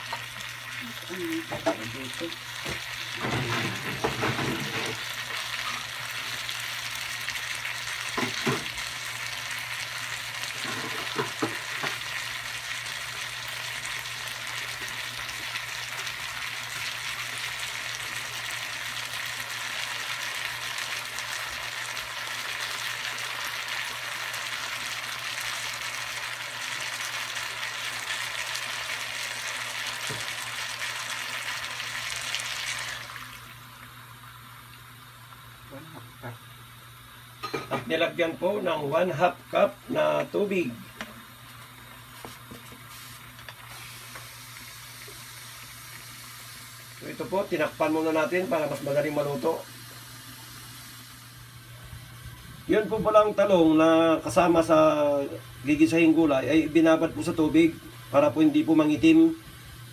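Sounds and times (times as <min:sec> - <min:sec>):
vegetables sizzling in a frying pan: 0:00.0 - 0:59.9.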